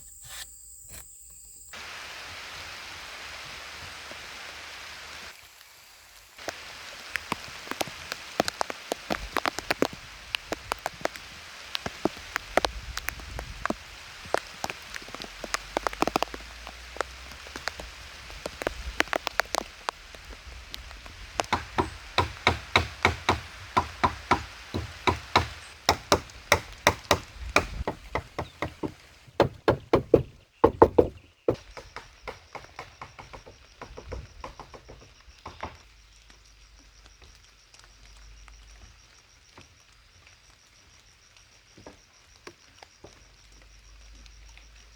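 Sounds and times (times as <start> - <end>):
steady rain: 1.7 - 30.9, 31.7 - 44.9
sharp knocks: 21.4 - 35.8.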